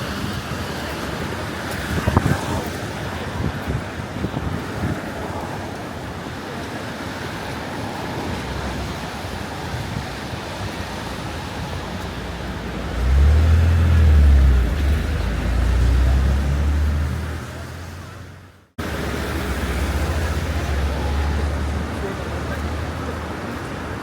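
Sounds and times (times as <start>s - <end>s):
tyres hissing on wet road: 0.0s - 24.0s
vehicle engine rumble: 7.1s - 24.0s.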